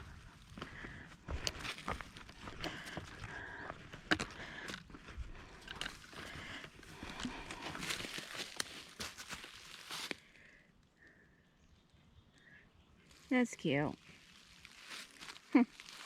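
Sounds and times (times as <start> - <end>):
footsteps crunching on dirt: 0.0 - 10.2, 14.1 - 16.0.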